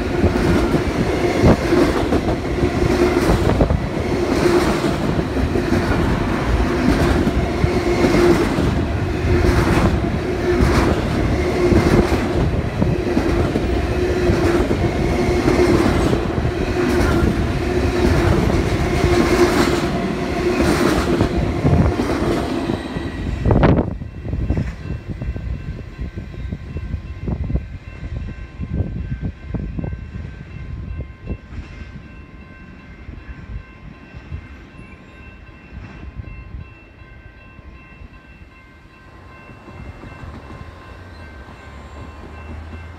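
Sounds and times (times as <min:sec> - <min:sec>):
freight train wheels clattering: 0:00.0 - 0:26.3.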